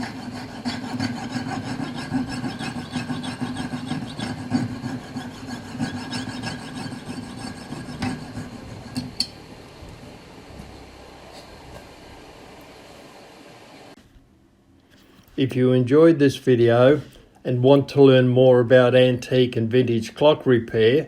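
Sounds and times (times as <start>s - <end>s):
saw rasping on metal: 0.0s - 9.2s.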